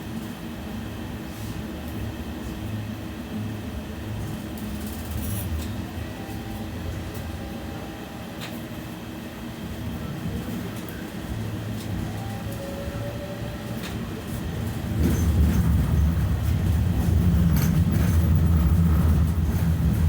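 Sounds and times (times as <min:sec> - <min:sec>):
tram motor hum: 0:02.2 - 0:20.0
wheels on rails: 0:11.8 - 0:20.0.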